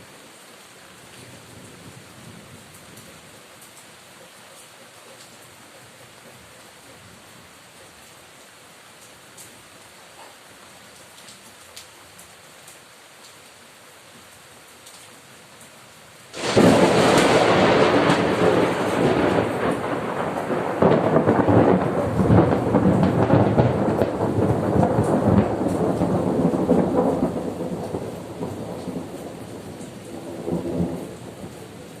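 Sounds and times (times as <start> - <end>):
steady rain: 0.0 - 32.0
thunder rumbling: 16.4 - 32.0.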